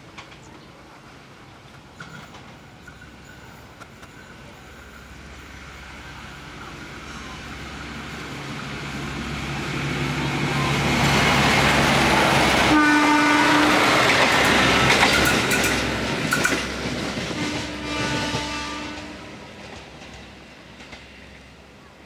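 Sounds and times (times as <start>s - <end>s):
railcar rumbling past: 0.0s - 22.0s
train horn blasts: 12.6s - 14.3s, 17.3s - 19.4s.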